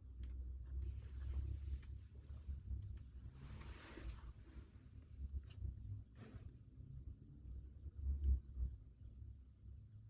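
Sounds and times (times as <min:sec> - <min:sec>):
low steady room rumble: 0:00.0 - 0:10.0
soft rustle: 0:03.3 - 0:06.5.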